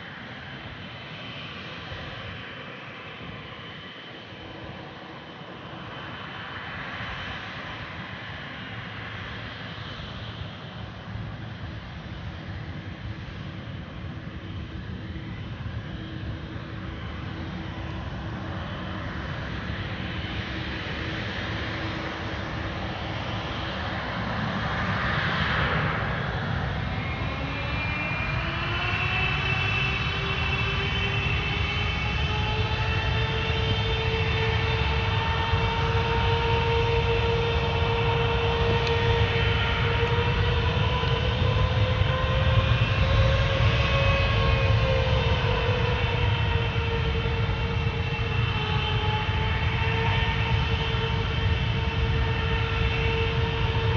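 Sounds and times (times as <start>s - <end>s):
jet engines spooling up: 25.4s - 49.3s
rising engine whine: 25.7s - 53.9s.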